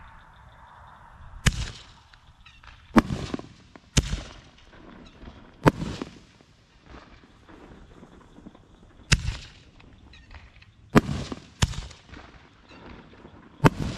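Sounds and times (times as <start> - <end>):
fireworks bangs with echo: 1.4 - 13.9.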